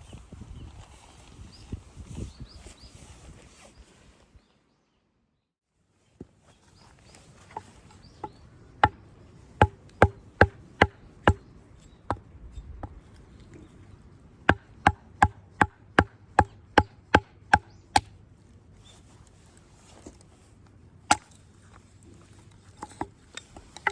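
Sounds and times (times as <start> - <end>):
axe chopping firewood: 7.6 - 13.0, 14.4 - 18.2, 21.1 - 21.4, 22.9 - 23.9.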